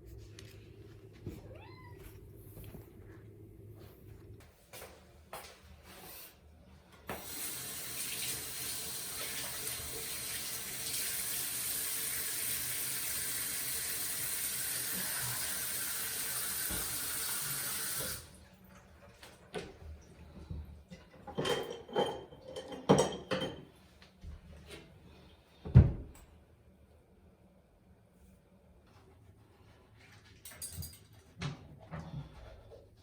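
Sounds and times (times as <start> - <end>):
tap water running into sink: 7.1 - 18.3.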